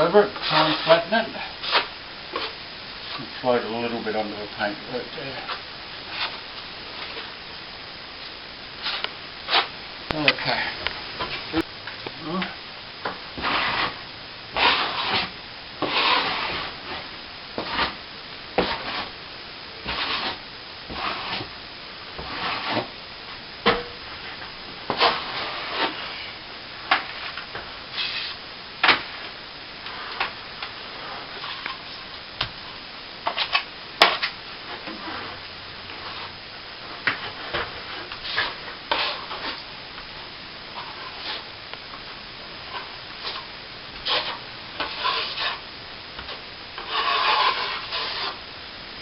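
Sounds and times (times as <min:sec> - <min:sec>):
trowel scraping cement: 0:13.4 - 0:14.0, 0:14.6 - 0:17.0, 0:19.8 - 0:21.5, 0:22.2 - 0:22.9, 0:28.0 - 0:28.4, 0:38.0 - 0:39.6, 0:42.8 - 0:45.6, 0:46.8 - 0:48.4.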